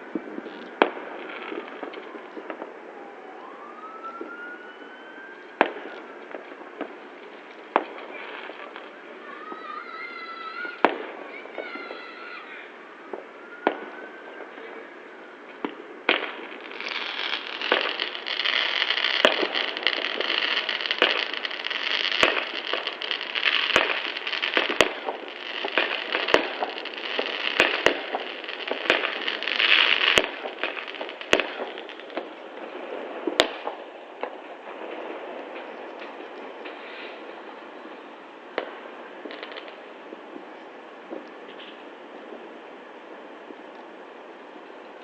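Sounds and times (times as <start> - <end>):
fireworks bangs: 0.0 - 45.0
fireworks crackling: 0.0 - 45.0.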